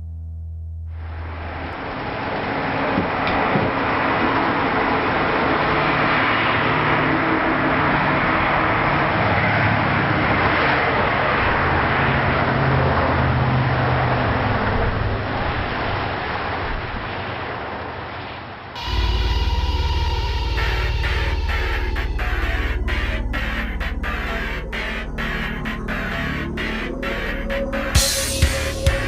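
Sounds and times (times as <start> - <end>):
road traffic noise: 0.9 - 29.0
low engine hum: 18.8 - 29.0.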